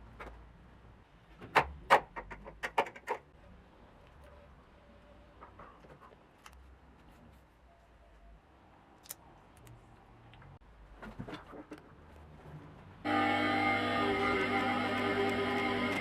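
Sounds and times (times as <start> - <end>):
sharp clicks and snaps: 9.0 - 10.5.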